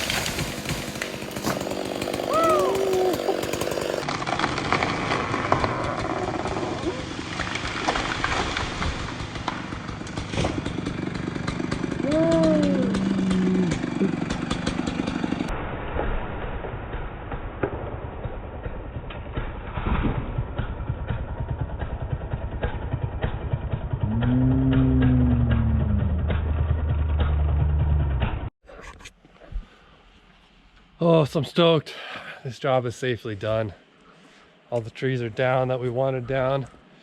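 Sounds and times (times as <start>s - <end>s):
chainsaw revving: 0.0s - 15.5s, 22.6s - 28.2s.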